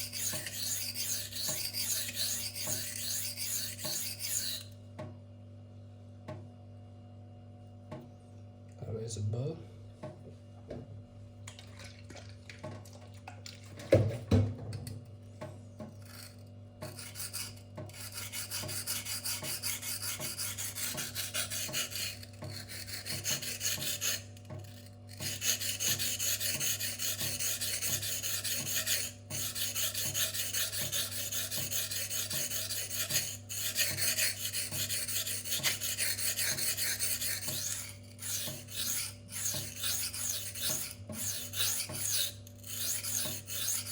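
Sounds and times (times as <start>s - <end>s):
knife rasping on whetstone: 0.0s - 4.7s, 16.0s - 43.9s.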